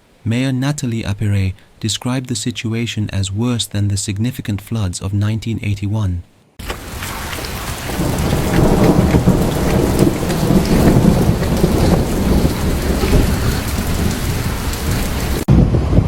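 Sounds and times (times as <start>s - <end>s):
heavy rain pelting: 6.6s - 15.5s
deep rumble: 6.7s - 16.0s.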